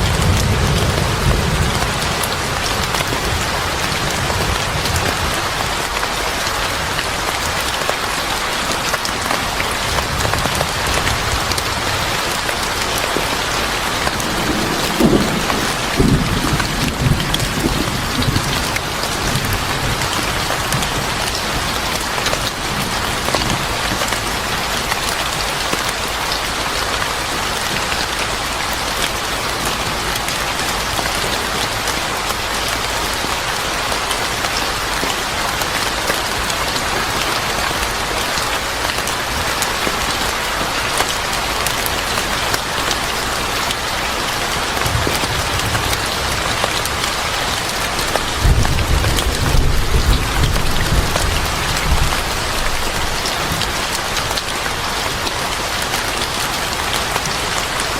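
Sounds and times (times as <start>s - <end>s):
heavy rain pattering: 0.0s - 57.9s
distant thunder rumble: 13.6s - 21.2s.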